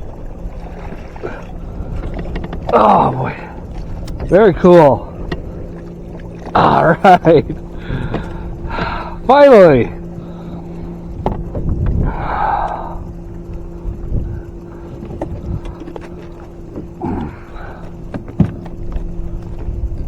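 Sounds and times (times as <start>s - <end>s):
steady low hum: 0.0s - 20.0s
scattered knocks and clicks: 11.2s - 12.0s, 18.0s - 20.0s.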